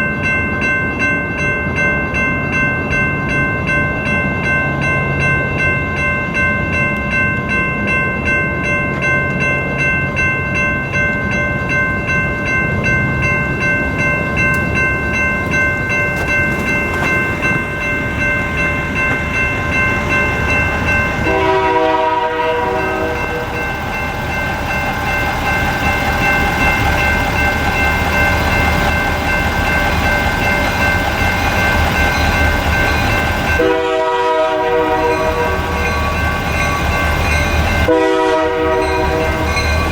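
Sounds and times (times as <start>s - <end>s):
electronic crossing bell ringing: 0.0s - 39.9s
diesel locomotive rumble: 8.2s - 39.9s
train horn blasts: 21.2s - 23.6s, 33.6s - 35.9s, 37.8s - 39.7s.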